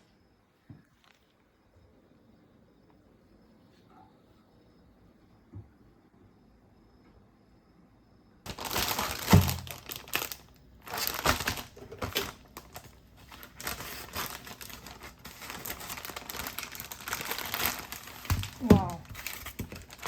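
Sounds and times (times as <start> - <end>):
plastic packaging crinkling: 8.5 - 20.0.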